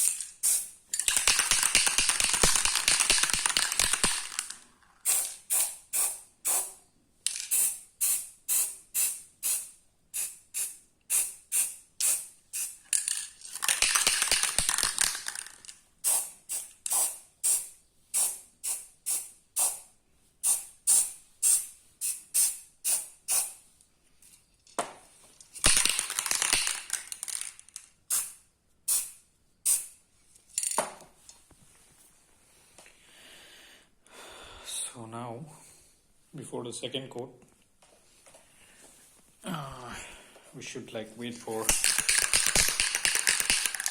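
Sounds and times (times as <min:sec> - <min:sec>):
aerosol spray can hissing: 0:00.0 - 0:01.5, 0:05.0 - 0:06.8, 0:07.5 - 0:12.8, 0:16.0 - 0:23.6.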